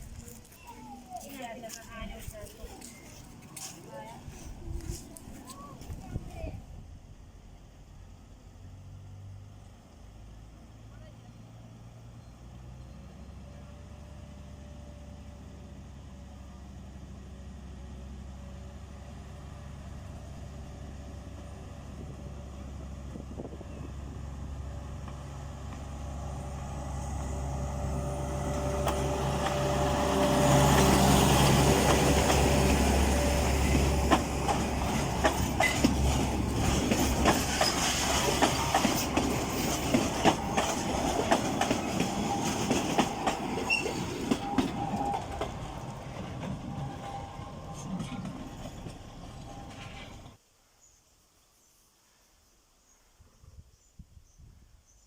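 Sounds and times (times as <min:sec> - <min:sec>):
diesel locomotive engine: 0:00.0 - 0:50.4
train wheels clicking over rail joints: 0:28.4 - 0:50.4.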